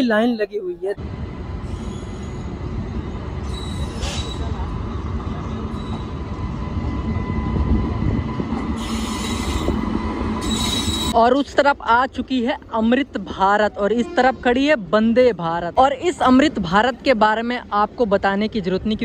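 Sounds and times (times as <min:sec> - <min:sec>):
train wheels rumbling on rails: 0:01.0 - 0:12.6
faint high wheel squeal: 0:01.6 - 0:02.6, 0:03.4 - 0:06.3, 0:08.8 - 0:11.2.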